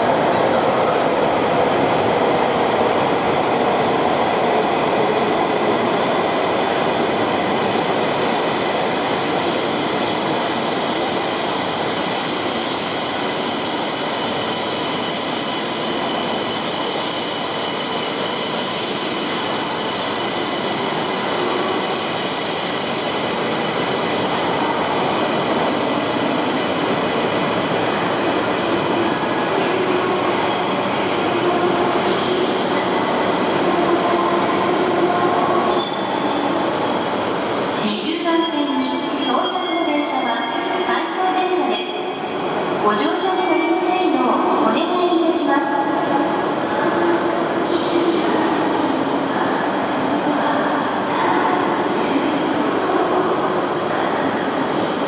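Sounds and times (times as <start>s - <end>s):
high squealing wheels: 12.1s - 31.2s, 35.6s - 41.2s, 42.0s - 43.8s.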